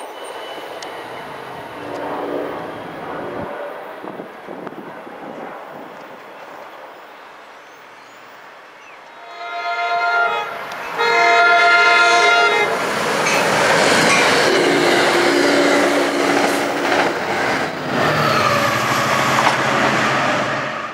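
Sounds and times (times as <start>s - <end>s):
train wheel and rail noise: 0.0s - 20.9s
train horn blast: 9.1s - 13.4s.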